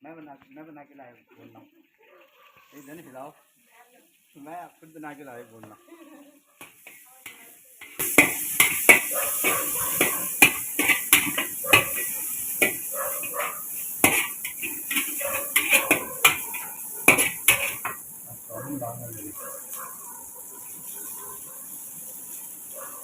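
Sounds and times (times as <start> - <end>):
steady sizzle: 0.0 - 23.0
metal utensil clattering on wok: 6.6 - 18.0.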